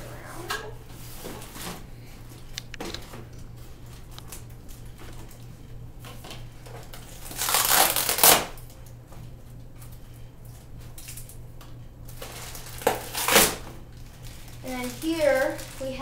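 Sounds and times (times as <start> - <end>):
low steady hum: 0.0 - 16.0
packaging crunching crinkle: 2.3 - 9.0, 12.0 - 16.0
packaging handled with clicks: 2.4 - 3.2.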